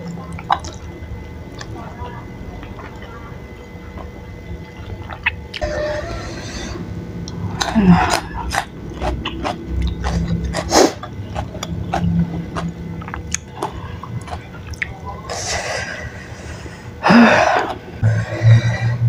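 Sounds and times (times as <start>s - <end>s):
wet chewing and mouth smacks: 0.0s - 0.9s, 3.9s - 5.6s, 7.3s - 15.0s.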